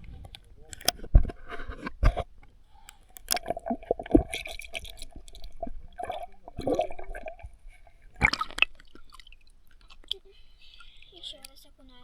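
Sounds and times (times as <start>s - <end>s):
water sloshing and gurgling: 0.0s - 11.5s
water splash: 3.2s - 10.2s.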